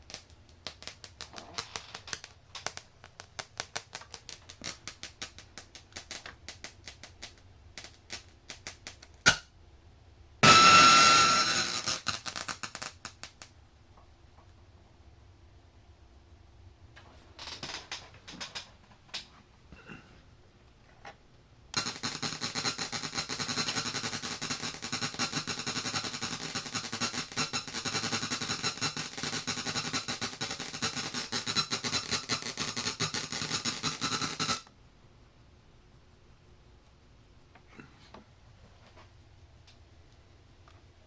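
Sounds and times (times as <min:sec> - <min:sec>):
digital clicks: 0:09.2 - 0:09.4, 0:10.4 - 0:12.5.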